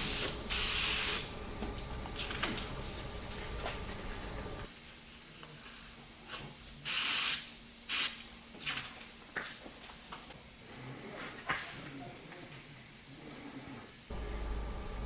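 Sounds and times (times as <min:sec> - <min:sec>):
airbrush spraying hissing bursts: 0:00.0 - 0:01.4.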